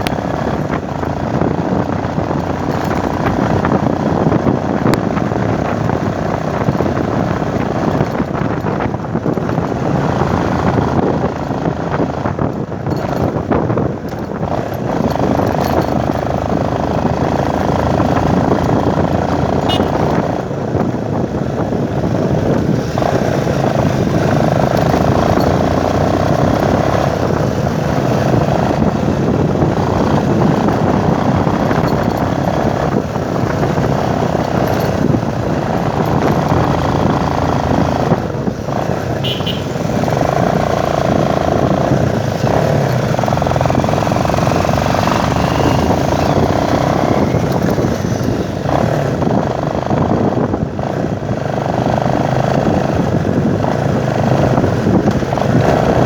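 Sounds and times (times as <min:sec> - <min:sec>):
motorcycle running: 0:00.0 - 0:56.0
wind noise on microphone: 0:00.0 - 0:56.0.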